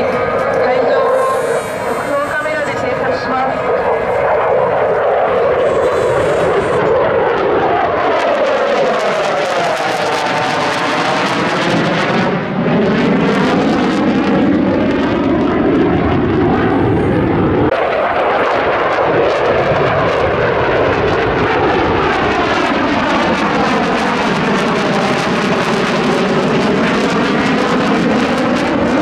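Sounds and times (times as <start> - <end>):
jet flying past: 0.0 - 29.0.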